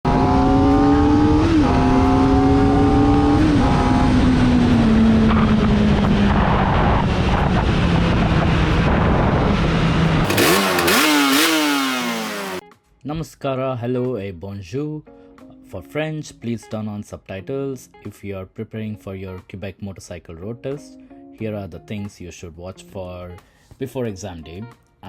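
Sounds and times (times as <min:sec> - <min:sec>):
motorcycle engine revving: 0:00.0 - 0:12.6
wind rumble: 0:05.1 - 0:10.3.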